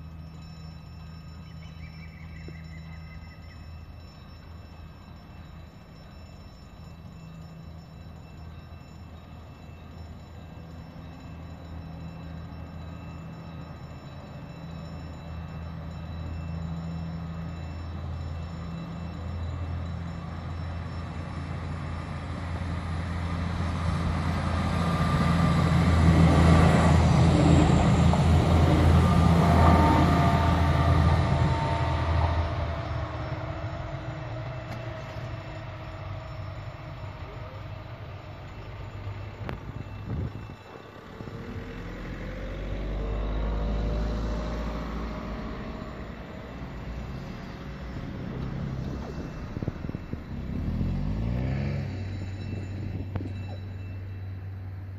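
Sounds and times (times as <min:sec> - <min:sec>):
diesel train engine drone: 0:00.0 - 0:54.9
wheels rumbling on rails: 0:00.0 - 0:54.9.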